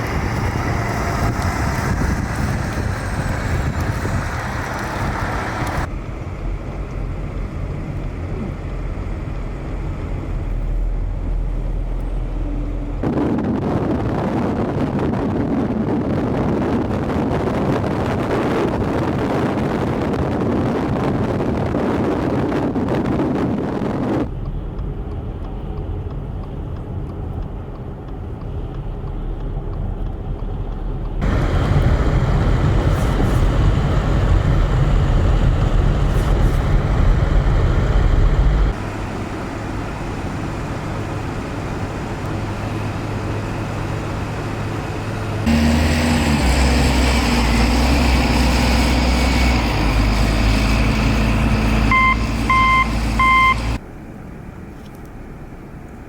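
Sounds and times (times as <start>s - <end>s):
wind noise on microphone: 0.0s - 39.0s
heavy vehicle engines running: 0.0s - 56.0s.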